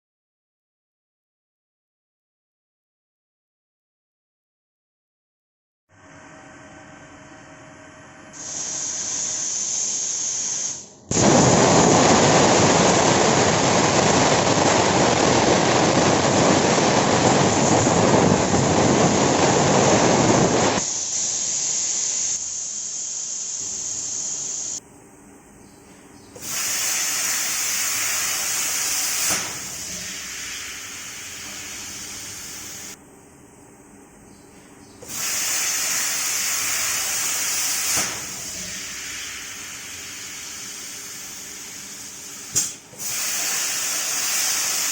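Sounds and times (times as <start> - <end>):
plasma cutting arc: 8.3 - 24.8, 26.4 - 33.0, 35.0 - 44.9
plasma torch air hiss: 8.3 - 24.8, 26.4 - 33.0, 35.0 - 44.9.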